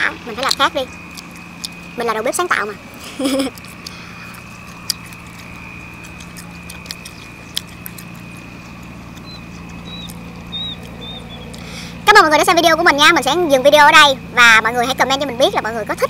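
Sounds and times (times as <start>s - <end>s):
low hum: 0.0s - 16.0s
mouth and tongue clicks: 0.4s - 1.9s, 3.5s - 11.7s
person chewing: 0.4s - 2.0s, 2.9s - 12.0s
short high chirps: 9.2s - 11.7s.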